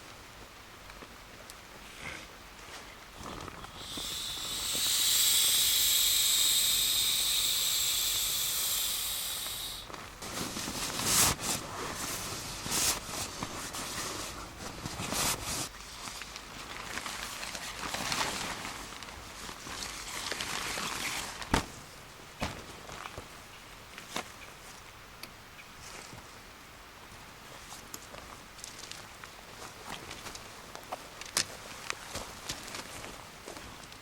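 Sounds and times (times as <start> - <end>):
loud steady high hiss: 0.0 - 14.6
irregular crunching or rustling: 9.9 - 21.7.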